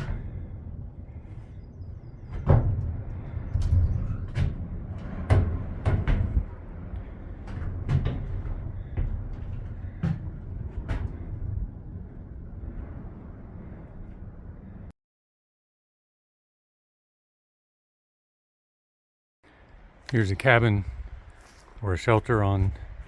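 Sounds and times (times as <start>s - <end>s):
low rumble: 0.0s - 14.9s.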